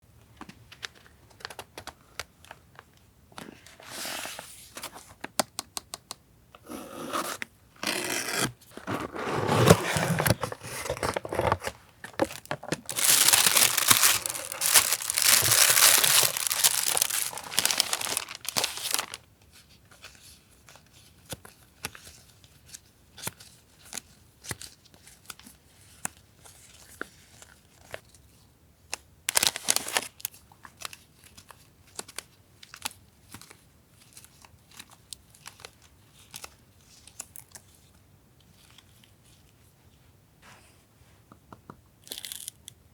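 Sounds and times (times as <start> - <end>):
paper crinkling and tearing: 8.8 - 19.2, 29.3 - 30.1.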